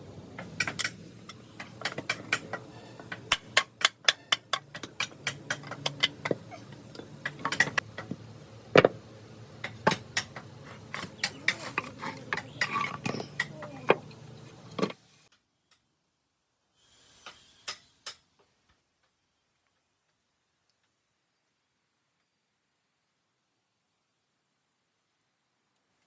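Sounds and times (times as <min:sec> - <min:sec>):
hand tool taps and knocks: 0:08.8 - 0:09.0.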